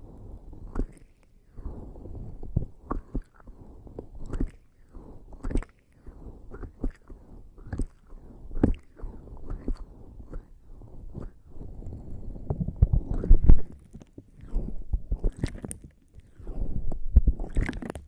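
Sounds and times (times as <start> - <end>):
skin rubbing on microphone: 6.1 - 18.0.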